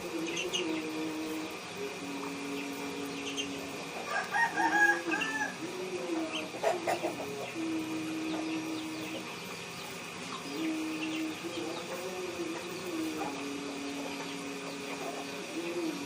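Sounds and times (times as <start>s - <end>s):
pigeons cooing: 0.0s - 16.0s
chicken call: 2.1s - 9.3s.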